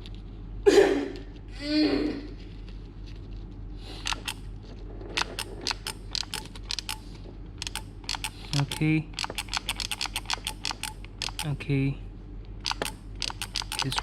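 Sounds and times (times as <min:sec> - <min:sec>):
solder gun trigger clicking: 0:07.6 - 0:11.5, 0:12.6 - 0:14.0.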